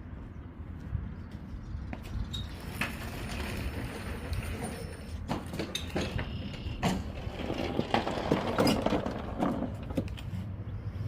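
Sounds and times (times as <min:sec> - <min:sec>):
push lawn mower clattering: 0:02.4 - 0:10.2.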